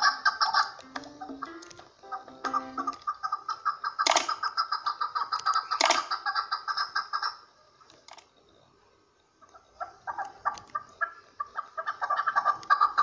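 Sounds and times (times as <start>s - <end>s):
partridge clucking call: 0.0s - 7.4s.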